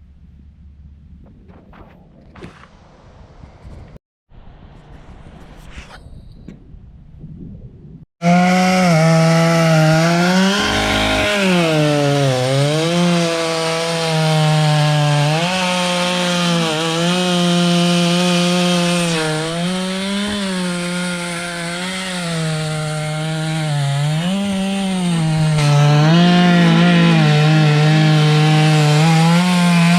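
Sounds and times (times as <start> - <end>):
chainsaw ripping a log: 8.2 - 29.9.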